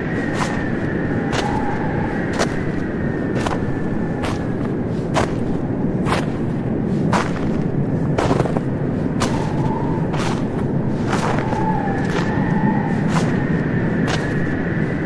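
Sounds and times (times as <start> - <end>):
footsteps crunching in snow: 0.0 - 15.0
low background rumble: 0.0 - 15.0.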